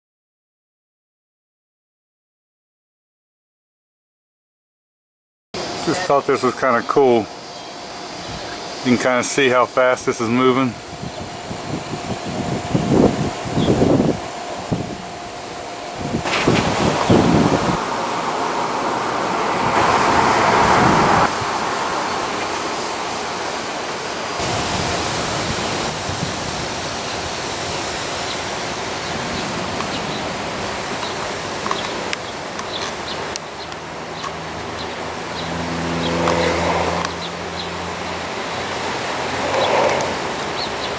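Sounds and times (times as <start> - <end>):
vehicle engine hum: 5.6 - 40.9
wind blowing across microphone: 10.1 - 35.4.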